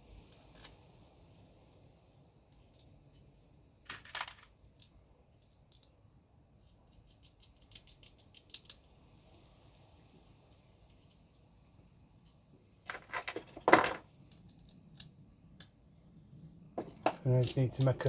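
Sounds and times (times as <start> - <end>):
nuts and bolts clattering: 12.8 - 15.1.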